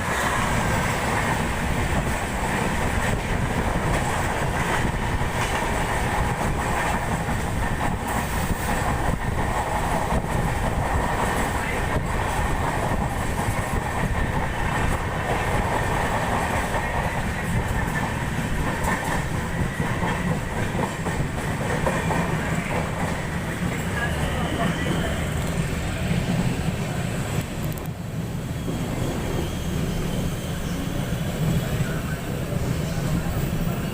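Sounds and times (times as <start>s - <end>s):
train wheels rumbling on rails: 0.0s - 33.9s
faint rail joint clicks: 27.4s - 28.0s.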